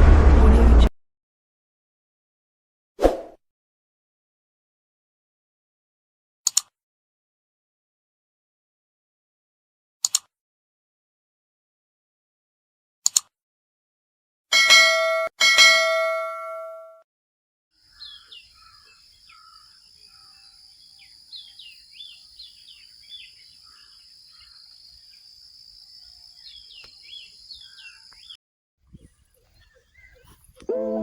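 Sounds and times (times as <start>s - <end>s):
bell ringing: 14.6s - 17.0s
birds chirping: 17.8s - 31.0s
high-pitched drone: 30.6s - 31.0s.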